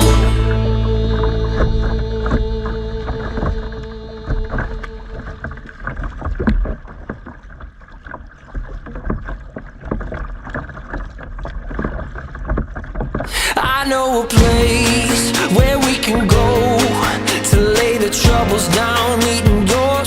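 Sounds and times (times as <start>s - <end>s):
music: 0.0s - 3.5s, 14.4s - 20.0s
small knocks and water splashes: 1.6s - 13.3s.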